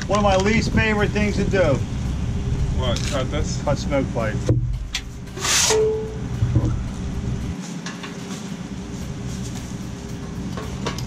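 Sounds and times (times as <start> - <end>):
steady background noise: 0.0 - 11.0
metallic ring: 4.8 - 7.5
metal rasping scrape: 5.0 - 6.2.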